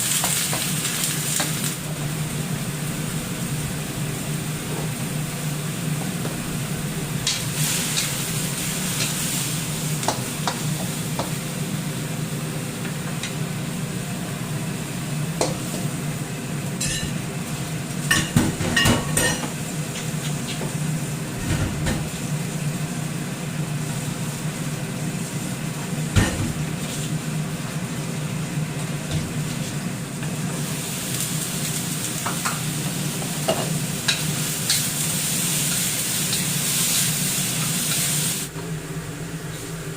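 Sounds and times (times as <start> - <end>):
food sizzling in a pan: 0.0 - 38.5
low hum: 1.8 - 10.4.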